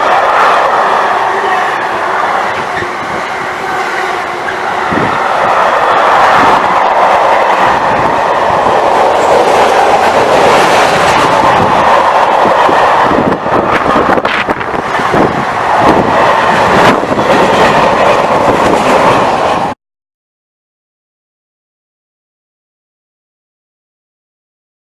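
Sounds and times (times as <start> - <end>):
train passing: 0.0 - 19.8.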